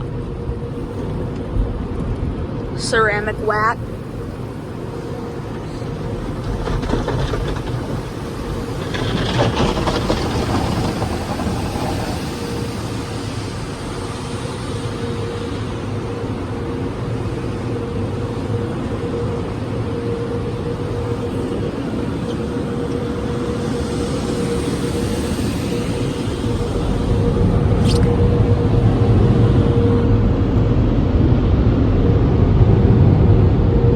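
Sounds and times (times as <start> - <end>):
car wash machinery noise: 0.0 - 33.9.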